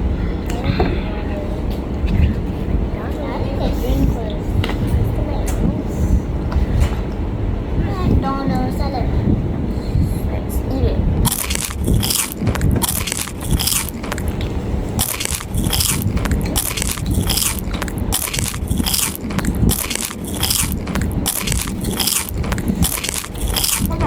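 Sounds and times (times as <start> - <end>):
crunchy biting and chewing: 11.2 - 24.0.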